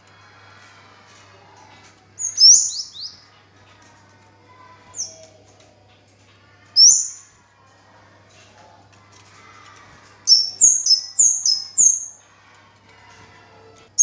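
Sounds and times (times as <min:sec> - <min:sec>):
songbird calling: 0:02.2 - 0:03.2, 0:06.8 - 0:07.2, 0:10.3 - 0:12.1.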